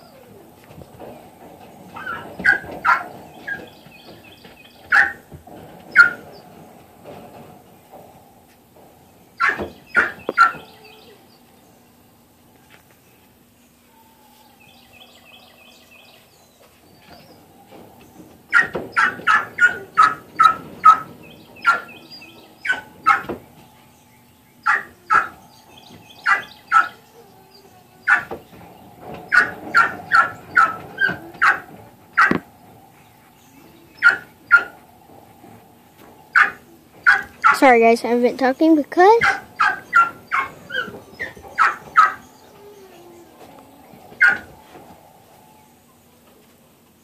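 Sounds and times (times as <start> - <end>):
dog barking sharply: 39.2 - 40.5.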